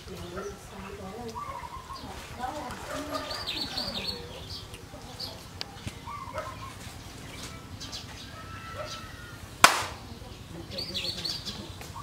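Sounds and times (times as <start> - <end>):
loud sharp click: 9.6 - 10.0.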